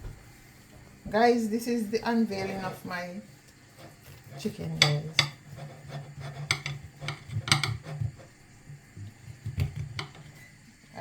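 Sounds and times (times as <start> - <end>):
cookware clinking and knocking: 6.4 - 8.0, 9.6 - 10.3.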